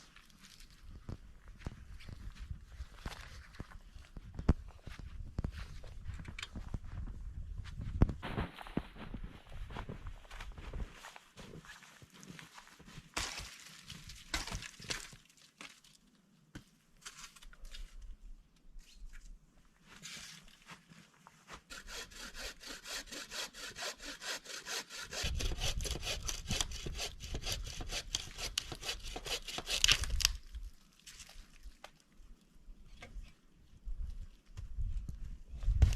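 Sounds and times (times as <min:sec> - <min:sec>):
hand saw cutting wood: 0:21.7 - 0:30.3.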